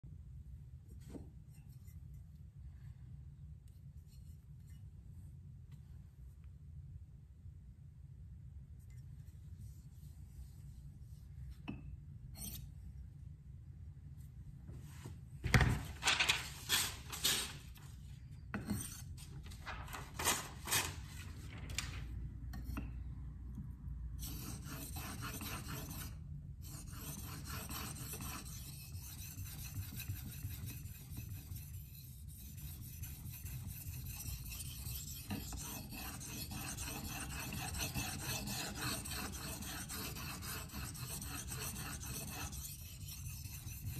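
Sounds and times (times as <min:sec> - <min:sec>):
knife scraping on whetstone: 0:12.4 - 0:12.7, 0:26.8 - 0:43.9.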